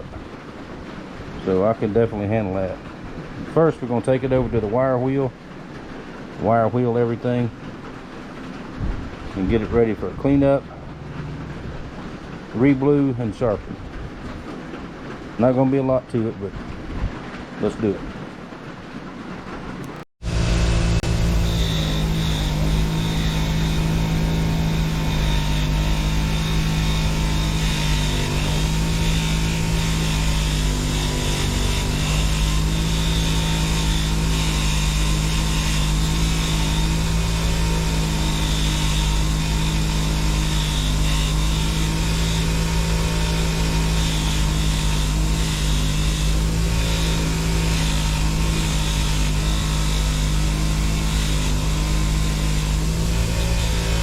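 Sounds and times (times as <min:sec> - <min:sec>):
wire wheel humming: 0:07.8 - 0:12.6, 0:19.8 - 0:54.0
blade brushed on wire wheel: 0:20.2 - 0:54.0.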